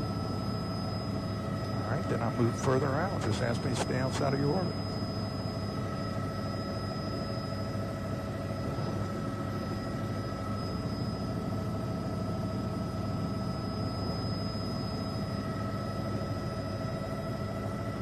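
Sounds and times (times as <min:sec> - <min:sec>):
high whine: 0:00.0 - 0:11.9
helicopter engine and rotor drone: 0:00.0 - 0:18.0.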